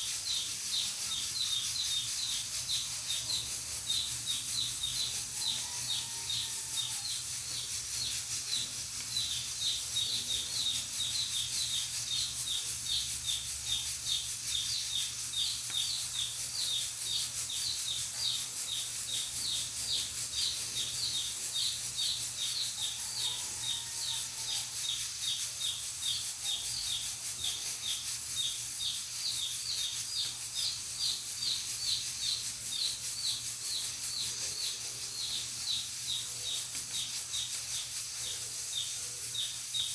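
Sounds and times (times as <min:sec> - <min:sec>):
pressure cooker hissing steam: 0:00.0 - 0:12.6
rapid high chirping: 0:00.0 - 0:23.0, 0:24.1 - 0:39.9.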